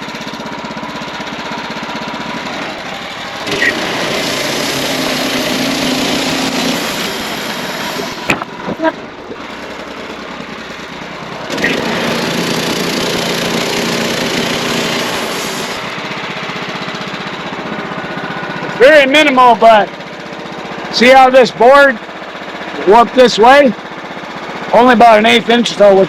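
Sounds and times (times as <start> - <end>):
band sawmill running: 0.0 - 26.0
sharp knocks: 2.2 - 15.9.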